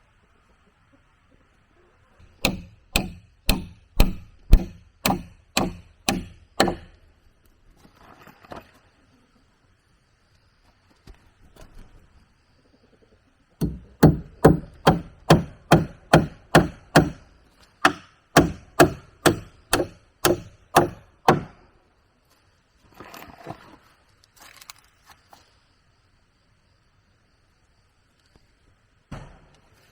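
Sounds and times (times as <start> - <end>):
hand tool striking wood: 2.2 - 7.0, 13.6 - 17.2, 17.8 - 21.6
wood scraping and rustling: 7.7 - 9.0.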